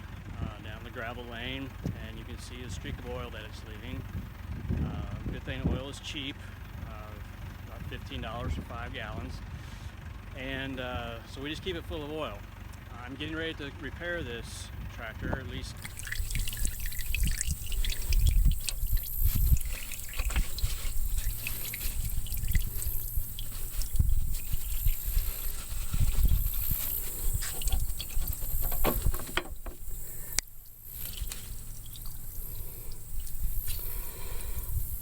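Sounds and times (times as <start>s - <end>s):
low thumps: 15.3s - 35.0s
light clicks and knocks: 17.4s - 30.6s.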